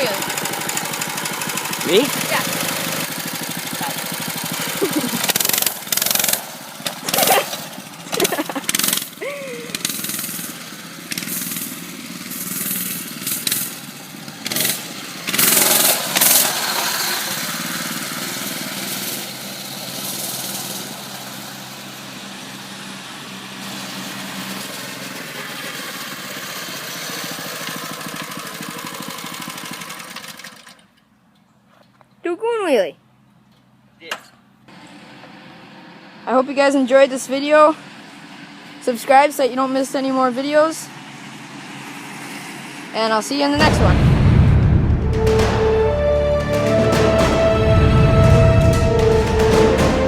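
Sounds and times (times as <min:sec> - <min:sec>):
mini bike engine running: 0:00.0 - 0:30.9
loud noise bursts: 0:43.6 - 0:50.0.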